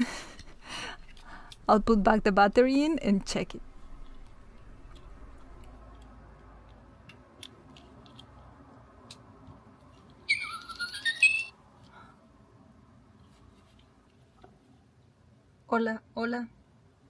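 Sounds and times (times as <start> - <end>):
toy bird chirping: 10.2 - 11.6.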